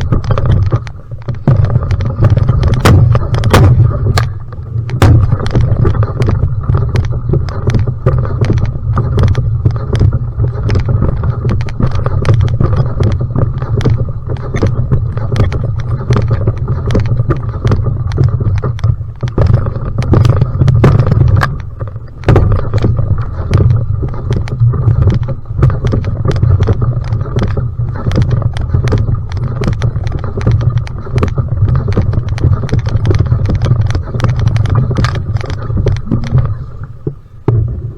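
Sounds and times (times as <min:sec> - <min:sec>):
paddle strokes: 0:00.0 - 0:37.9
water splashing: 0:00.0 - 0:37.9
wind rumble on microphone: 0:00.0 - 0:37.9.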